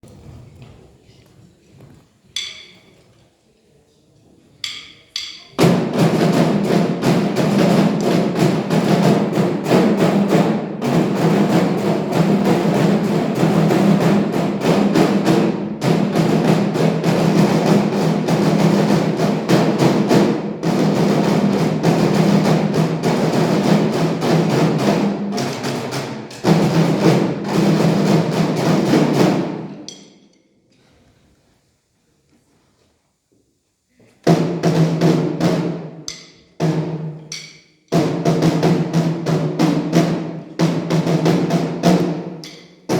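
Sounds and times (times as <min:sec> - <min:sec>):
drummers playing march rhythm: 0:05.2 - 0:29.9, 0:34.3 - 0:42.9.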